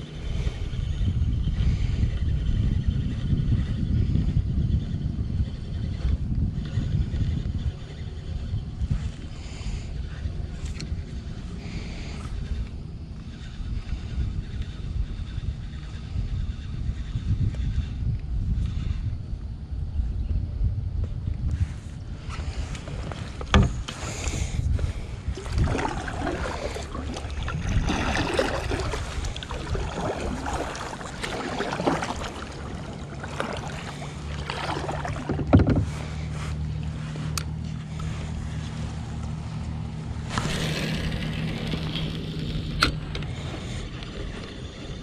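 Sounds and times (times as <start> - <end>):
low steady hum: 0.0 - 45.0
paddle splashing in water: 25.3 - 36.4.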